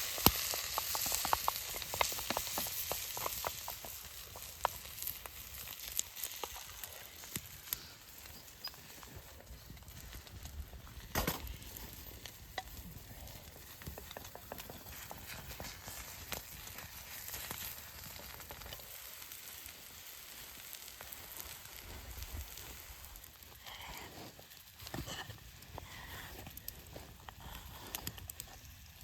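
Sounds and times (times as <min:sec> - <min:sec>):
food sizzling in a pan: 0:00.0 - 0:07.8, 0:15.8 - 0:23.5
wood fire crackling: 0:00.0 - 0:29.0.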